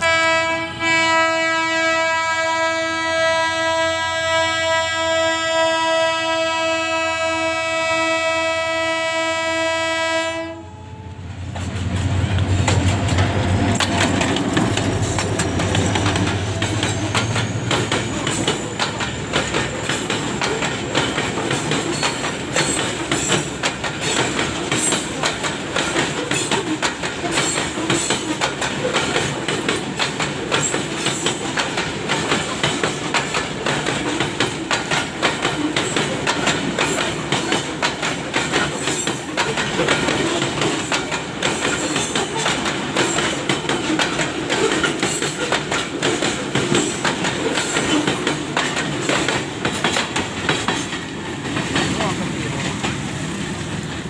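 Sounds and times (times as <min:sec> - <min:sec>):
locomotive horn blast: 0:00.0 - 0:11.2
wheels clicking over rail joints: 0:11.5 - 0:54.0
freight wagons rattling: 0:12.6 - 0:53.1.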